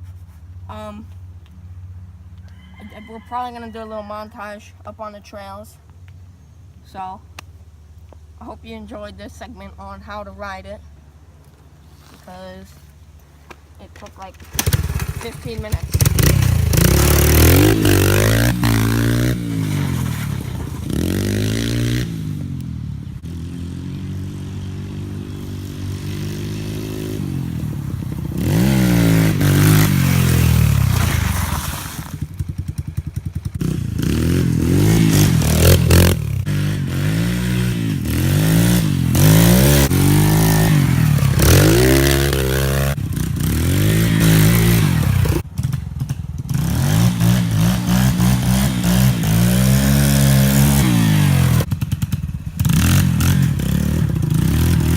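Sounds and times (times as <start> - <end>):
dirt bike engine revving: 14.0 - 54.9.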